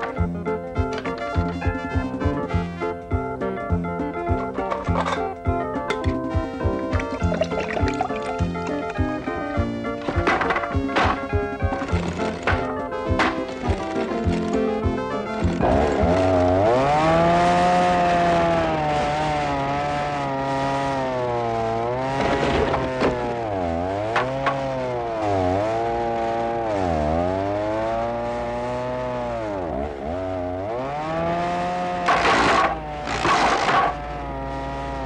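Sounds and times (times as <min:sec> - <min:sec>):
power tool motor running: 0:29.4 - 0:35.0.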